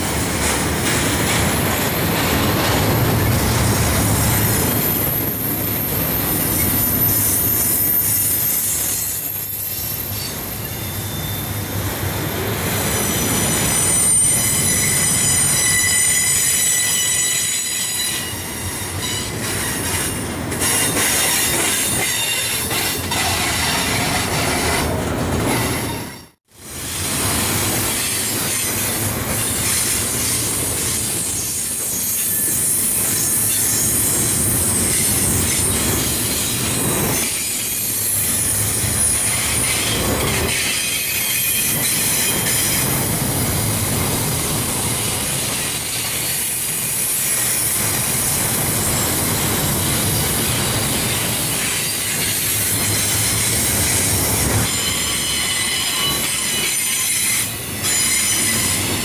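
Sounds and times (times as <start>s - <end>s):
train wheels rumbling on rail: 0.0s - 59.0s
high-pitched wheel squeal: 4.3s - 11.8s, 12.7s - 20.0s, 54.6s - 59.0s.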